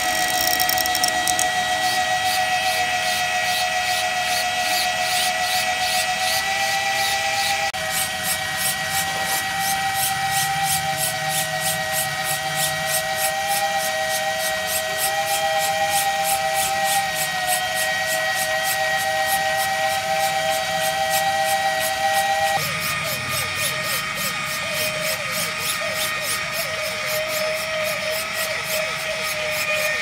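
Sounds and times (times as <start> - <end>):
plastic gears ticking: 0.0 - 1.5
small motors whining: 0.0 - 17.0.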